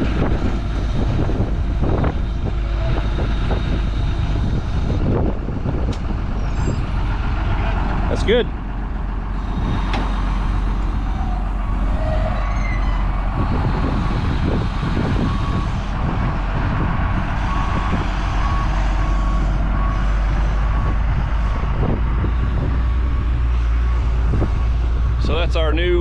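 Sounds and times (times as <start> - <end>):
heavy vehicle engine running: 0.0 - 26.0
reversing alarm beeping: 9.4 - 24.4.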